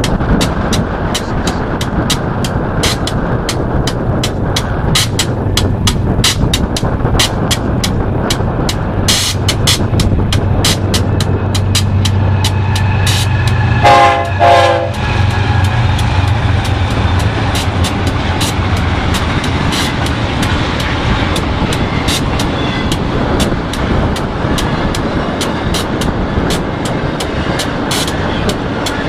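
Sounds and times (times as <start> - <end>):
diesel locomotive drone: 0.0 - 29.0
railcars rolling with wheel clicks: 0.0 - 29.0
train horn blasts: 11.6 - 20.0.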